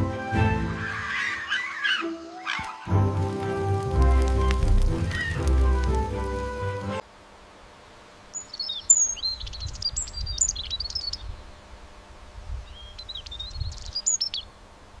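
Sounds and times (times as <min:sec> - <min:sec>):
birds twittering: 0:00.7 - 0:03.4, 0:04.1 - 0:06.5, 0:08.3 - 0:14.6.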